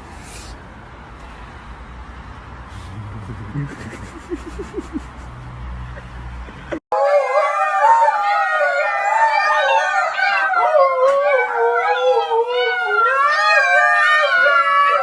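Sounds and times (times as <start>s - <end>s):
dogs howling: 6.9s - 15.0s.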